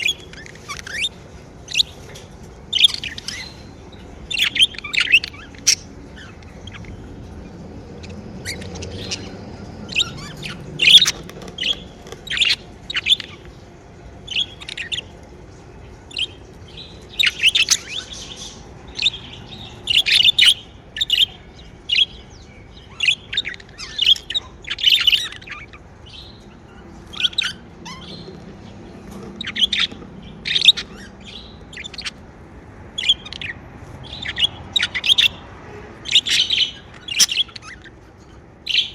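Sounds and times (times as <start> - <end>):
budgerigars chirping: 0.0 - 38.9
faint low hum: 0.0 - 38.9.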